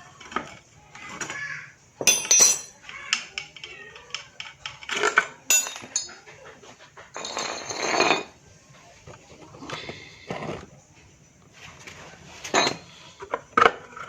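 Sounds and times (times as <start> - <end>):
metal tools clinking together: 2.0 - 3.2, 4.1 - 6.2.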